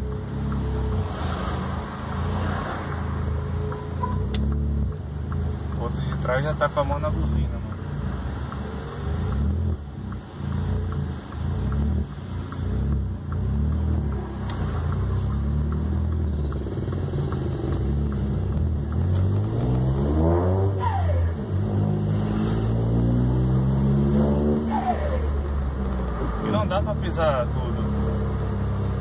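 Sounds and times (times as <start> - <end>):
car engine accelerating hard: 6.4 - 29.0.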